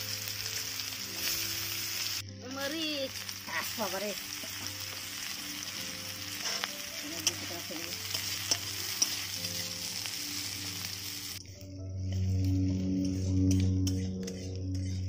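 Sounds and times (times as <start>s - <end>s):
onions sizzling in a wok: 0.0s - 15.0s
soft background music: 0.0s - 15.0s
spatula scraping a pan: 6.3s - 10.5s.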